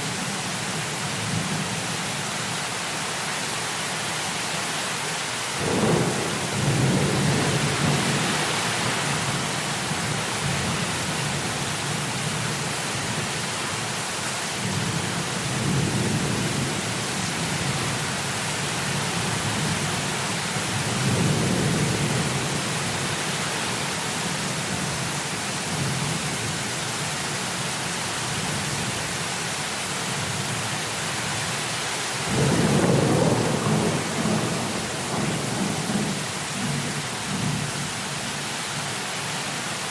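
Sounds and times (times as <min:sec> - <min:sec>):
heavy rain hissing: 0:00.0 - 0:39.9
thunder rumbling: 0:05.6 - 0:10.9, 0:32.3 - 0:37.5.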